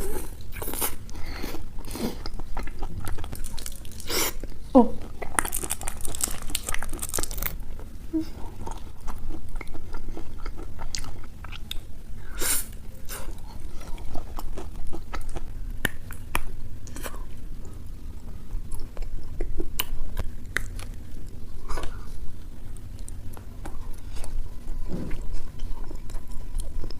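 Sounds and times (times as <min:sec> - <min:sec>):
person chewing chocolate: 0:00.0 - 0:26.9
crisp filling crackling: 0:02.2 - 0:07.8.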